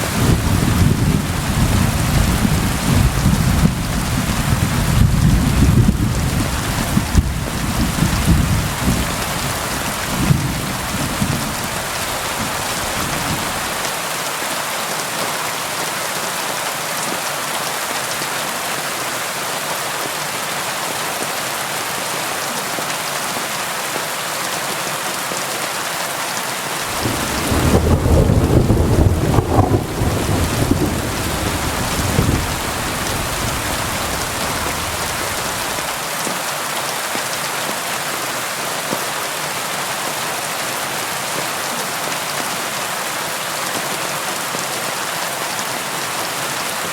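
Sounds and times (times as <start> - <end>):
rolling thunder: 0.0 - 13.8, 26.9 - 36.0
rain drumming on a tin roof: 0.0 - 46.9.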